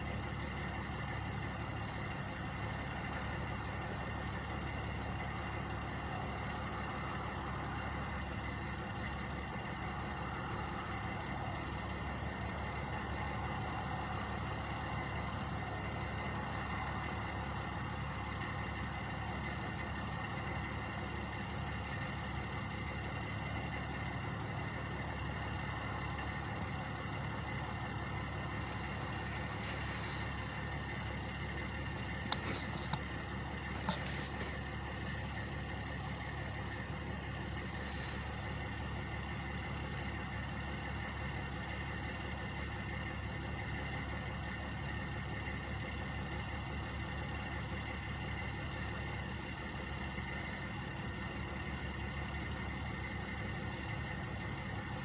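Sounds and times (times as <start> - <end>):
truck engines idling: 0.0 - 55.0
brief hiss: 28.6 - 30.6, 37.7 - 38.5.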